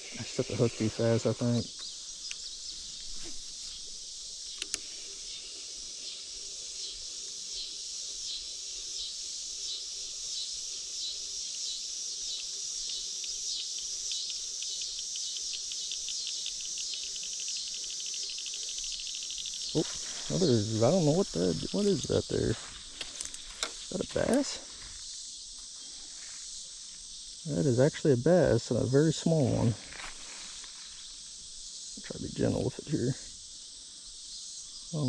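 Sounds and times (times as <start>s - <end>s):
insects droning and trilling: 0.0s - 35.0s
sharp clicks: 4.5s - 4.9s.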